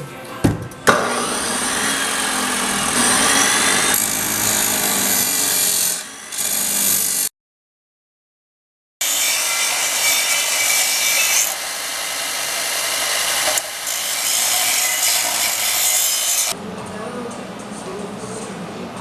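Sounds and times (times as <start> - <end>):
power tool grinding steel: 0.9 - 7.3, 9.0 - 16.6.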